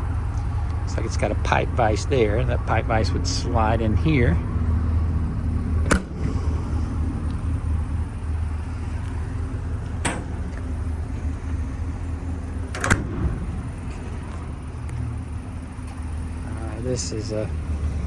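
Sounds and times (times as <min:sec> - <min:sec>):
steady low rumble: 0:00.0 - 0:18.0
sharp metal clicks: 0:05.8 - 0:06.3, 0:10.0 - 0:10.8, 0:12.7 - 0:14.2.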